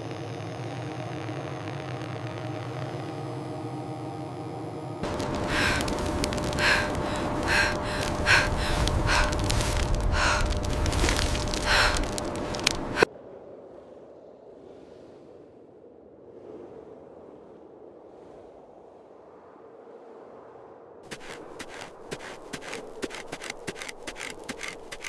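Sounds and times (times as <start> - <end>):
person breathing hard: 5.0 - 13.1, 21.1 - 25.0
steady rushing noise: 5.0 - 13.1.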